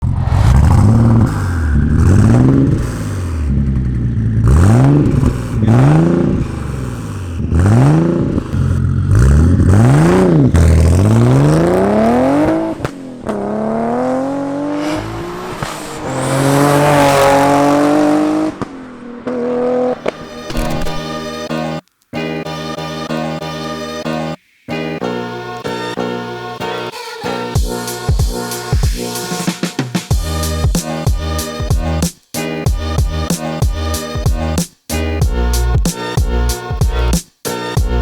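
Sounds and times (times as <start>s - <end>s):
car engine revving: 0.0s - 21.5s.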